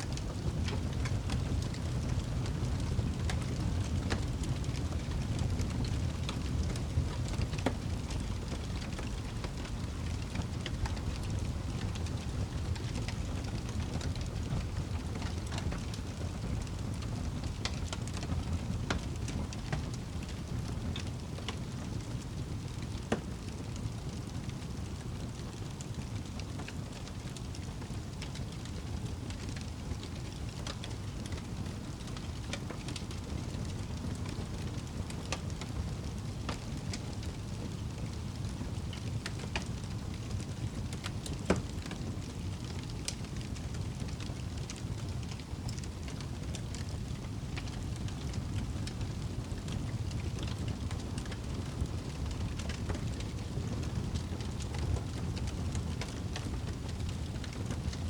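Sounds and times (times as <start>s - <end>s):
low rumble of burning: 0.0s - 58.0s
wood fire crackling: 0.0s - 58.0s.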